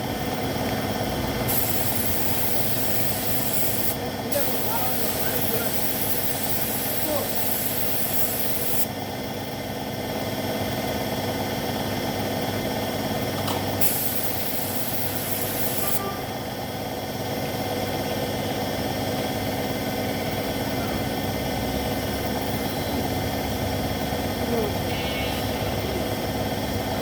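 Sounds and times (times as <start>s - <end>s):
steady machine hum: 0.0s - 27.0s
paint spray gun hissing: 1.4s - 8.9s, 13.5s - 16.0s.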